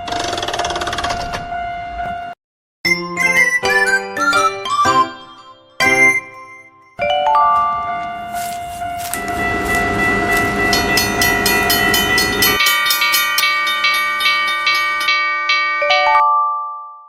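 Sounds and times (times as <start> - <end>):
train rumble: 7.8 - 15.1
train horn chord: 8.1 - 12.6.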